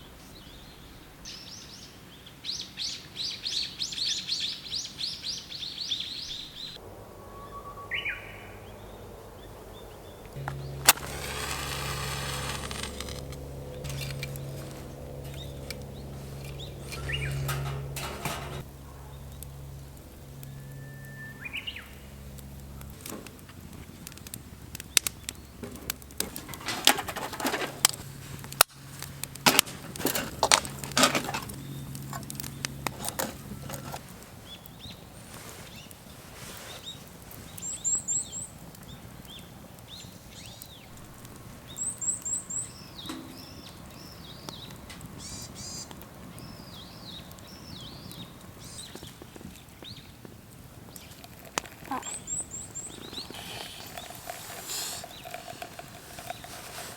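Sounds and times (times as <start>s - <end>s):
birds chirping: 7.8s - 23.0s, 30.0s - 56.9s
rustling: 10.4s - 19.3s, 26.1s - 37.8s, 50.9s - 56.9s.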